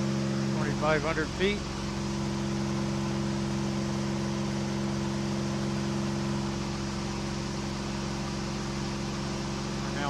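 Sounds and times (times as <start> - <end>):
airplane engine droning: 0.0 - 10.0.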